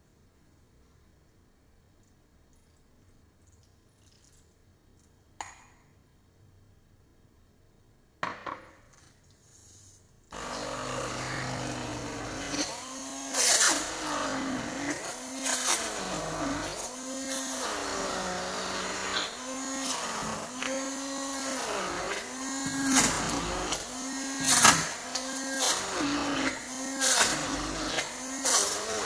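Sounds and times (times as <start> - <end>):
electric mixer running: 10.4 - 29.0.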